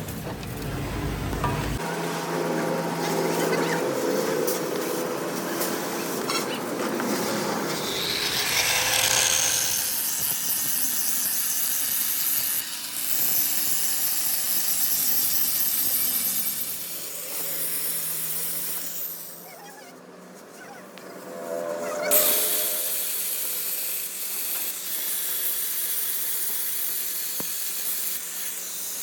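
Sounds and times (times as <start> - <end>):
power tool grinding metal: 7.0 - 19.5, 21.3 - 29.0.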